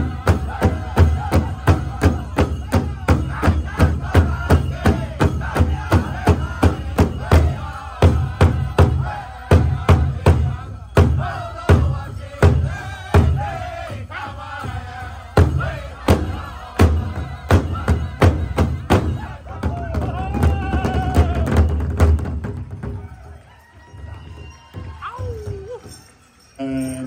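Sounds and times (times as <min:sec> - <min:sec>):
large drum beating: 0:00.0 - 0:13.6, 0:15.4 - 0:23.0
singers chanting together: 0:00.0 - 0:21.5.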